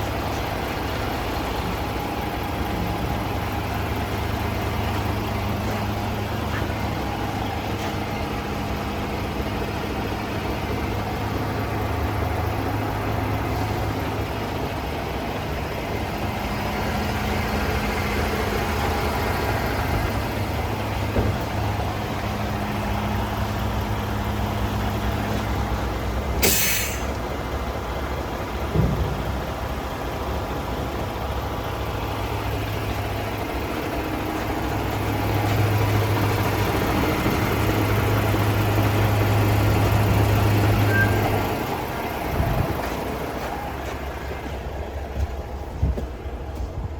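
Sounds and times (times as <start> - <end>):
truck diesel engine idling: 0.0 - 46.9
air release hiss: 26.4 - 27.2.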